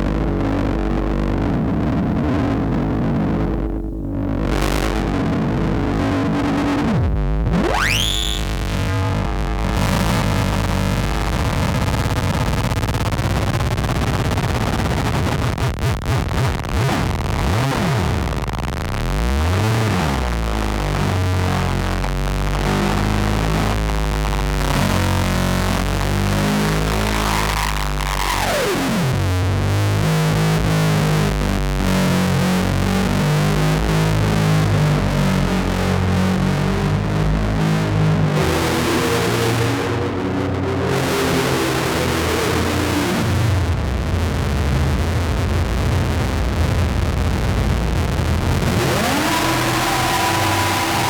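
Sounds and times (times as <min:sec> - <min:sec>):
synth tone sweeping down: 0:00.0 - 0:10.4, 0:48.6 - 0:51.0
distorted synth noise drone: 0:00.0 - 0:51.0.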